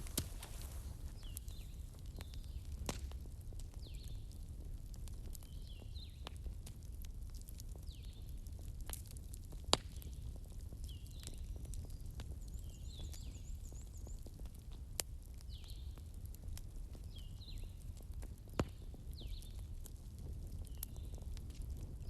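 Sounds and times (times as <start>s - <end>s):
fireplace crackling: 0.0s - 5.5s, 6.1s - 12.4s.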